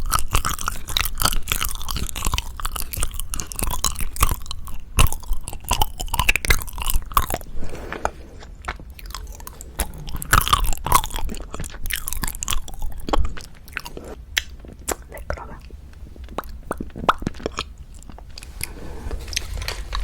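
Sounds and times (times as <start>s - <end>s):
close chewing: 0.0s - 20.0s.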